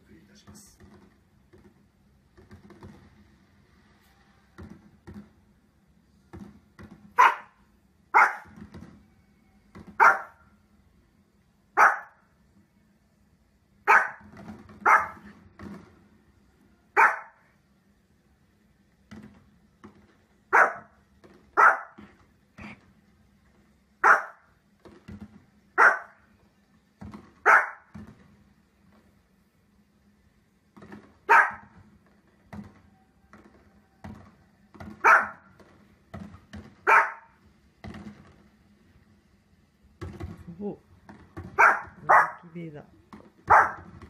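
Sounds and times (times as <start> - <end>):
small dog barking: 7.2 - 8.6, 10.0 - 10.4, 11.8 - 12.2, 13.8 - 15.3, 17.0 - 17.5, 20.5 - 21.0, 21.6 - 22.0, 24.0 - 24.5, 25.8 - 26.2, 27.4 - 27.9, 31.3 - 31.7, 35.0 - 35.5, 36.8 - 37.4, 41.6 - 42.5, 43.5 - 43.9.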